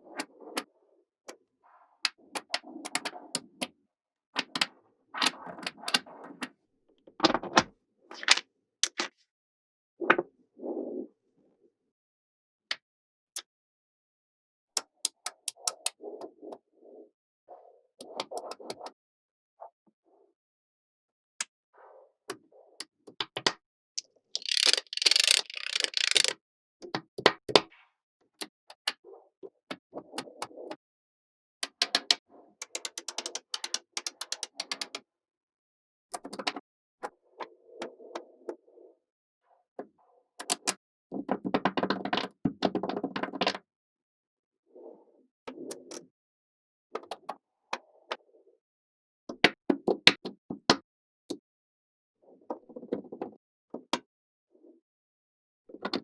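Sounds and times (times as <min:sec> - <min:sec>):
balls rattling: 0:08.1 - 0:09.0, 0:24.4 - 0:26.3
magnetic balls clicking together: 0:24.4 - 0:26.4.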